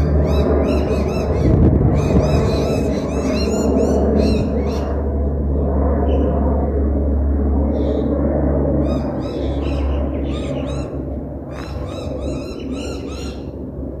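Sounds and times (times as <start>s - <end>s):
jet airliner rumble: 0.0s - 14.0s
bird chirping: 8.8s - 13.5s.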